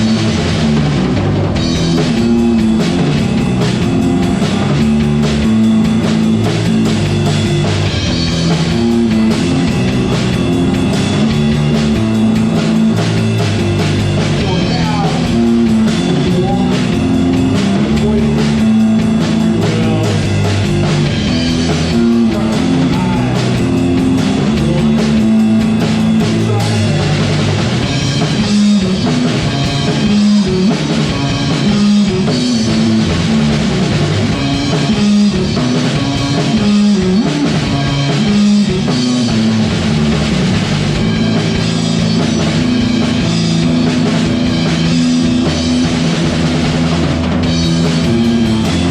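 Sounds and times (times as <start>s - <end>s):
punk rock band playing live: 0.0s - 48.9s.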